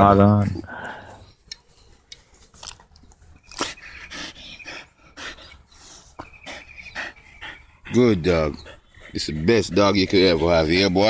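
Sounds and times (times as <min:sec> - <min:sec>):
dog panting and snuffling: 0:03.6 - 0:11.0.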